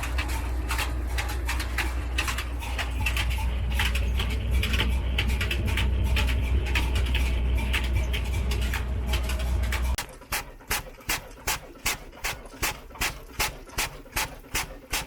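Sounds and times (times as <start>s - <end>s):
engine clicking and clatter: 0.0s - 15.0s
diesel engine droning: 0.1s - 10.0s.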